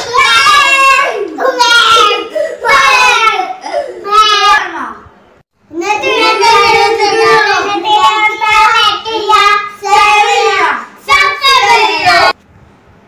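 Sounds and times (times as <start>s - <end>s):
child breathing: 2.3s - 2.6s.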